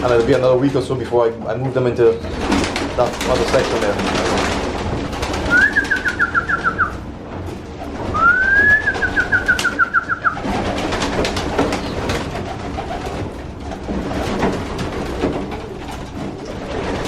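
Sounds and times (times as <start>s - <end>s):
pigeons shuffling: 0.0s - 17.0s
pigeons cooing: 2.1s - 7.1s, 7.8s - 14.2s
high pulsing whistled calls: 5.4s - 7.0s, 8.1s - 10.4s.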